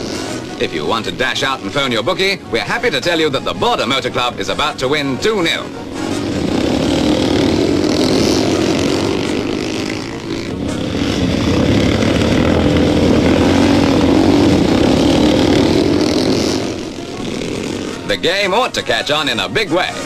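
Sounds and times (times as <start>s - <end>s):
small motorcycle engines revving: 0.0s - 20.0s.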